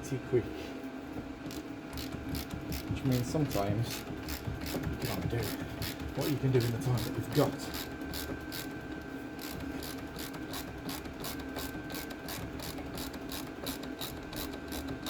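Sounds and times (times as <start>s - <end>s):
ratchet wrench clicking: 3.9s - 8.7s, 9.4s - 15.0s.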